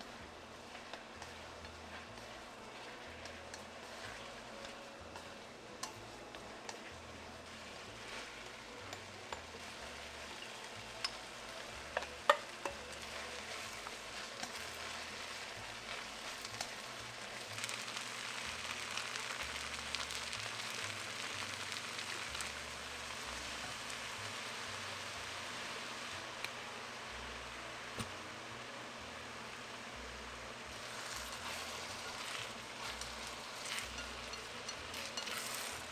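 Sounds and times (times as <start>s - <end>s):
food sizzling in a frying pan: 0.0s - 35.9s
utensil tapping: 27.9s - 28.3s.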